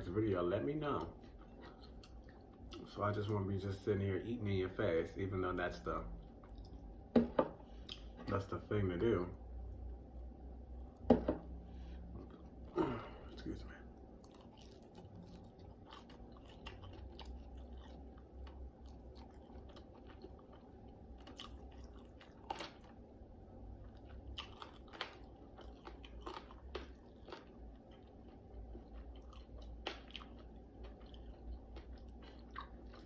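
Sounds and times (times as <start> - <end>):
low steady hum: 0.0 - 33.0
person chewing and crunching: 0.8 - 3.0, 10.2 - 33.0.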